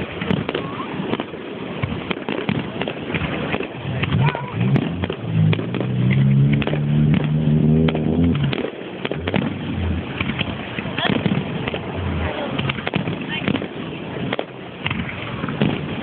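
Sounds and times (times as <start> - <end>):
fireworks bangs and crackles: 0.0 - 16.0
low firework booms: 0.0 - 16.0
steady rushing noise: 0.0 - 16.0
low steady drone: 3.8 - 12.9.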